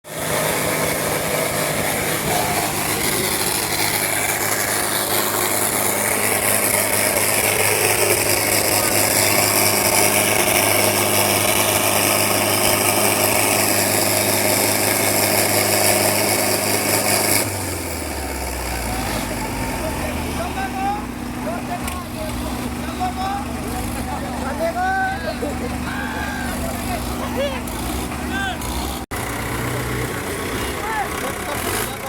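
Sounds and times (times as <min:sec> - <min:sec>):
tractor engine running: 0:00.0 - 0:32.0
people's voices: 0:00.8 - 0:16.2, 0:18.3 - 0:32.0.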